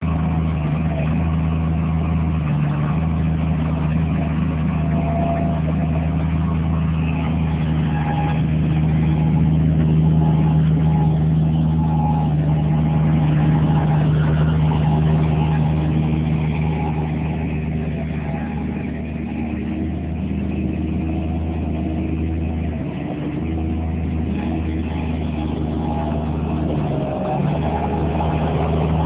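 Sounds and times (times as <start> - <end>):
skid steer engine running: 0.0 - 29.0.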